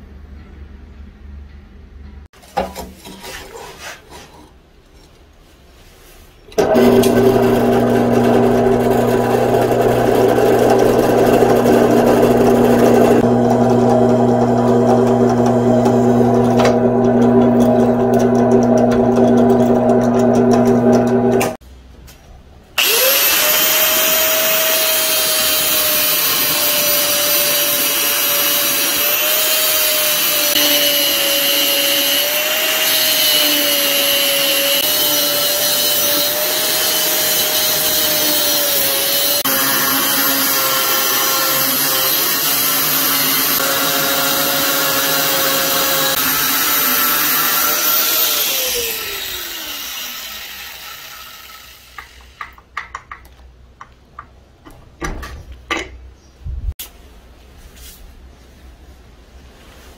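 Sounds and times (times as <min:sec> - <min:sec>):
angle grinder cutting steel: 0:06.6 - 0:21.6, 0:22.8 - 0:52.4.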